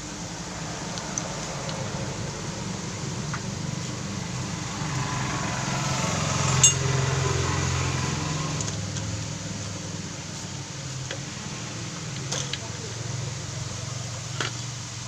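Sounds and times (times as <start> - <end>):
metallic clink: 6.5 - 6.9.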